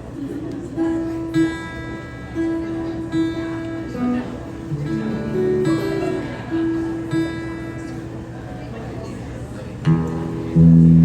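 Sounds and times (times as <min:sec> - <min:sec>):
guitar strings plucked: 0:01.0 - 0:08.2, 0:09.8 - 0:11.0.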